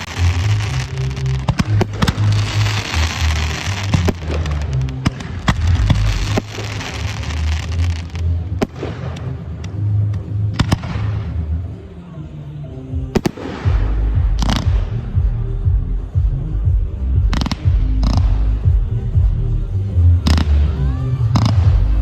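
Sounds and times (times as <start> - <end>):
music with heavy bass beat: 0.0 - 11.4, 13.0 - 22.0
fireworks banging: 0.0 - 11.6, 13.2 - 16.2
crackling hiss: 0.0 - 11.8.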